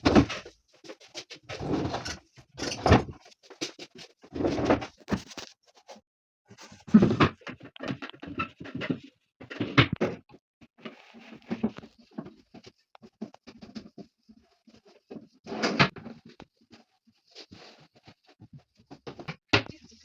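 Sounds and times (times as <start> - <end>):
objects knocking and clicking: 6.9 - 14.1.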